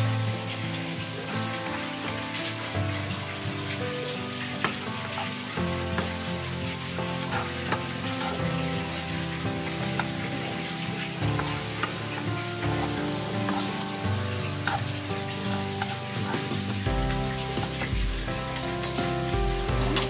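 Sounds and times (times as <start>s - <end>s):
sausages sizzling in a pan: 0.0s - 20.0s
spatula scraping a pan: 4.6s - 18.0s.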